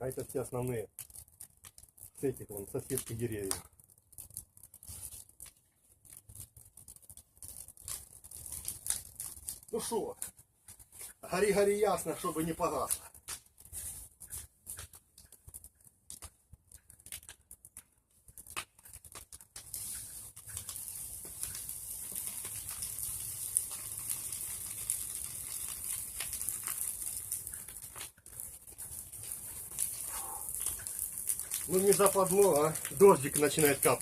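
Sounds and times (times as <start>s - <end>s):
bonfire crackling and popping: 0.0s - 34.0s
steady high hiss: 11.2s - 12.9s, 31.4s - 34.0s.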